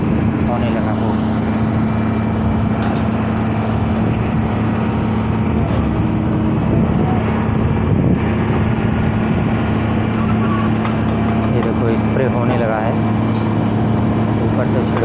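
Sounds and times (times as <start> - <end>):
spray machine engine hum: 0.0 - 15.0.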